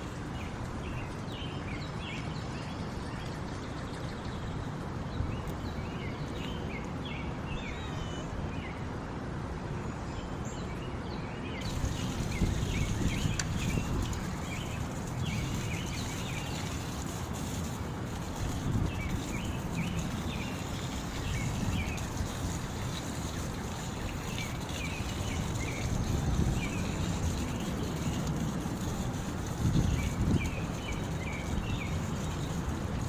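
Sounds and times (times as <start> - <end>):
small birds chirping: 10.2 - 33.0.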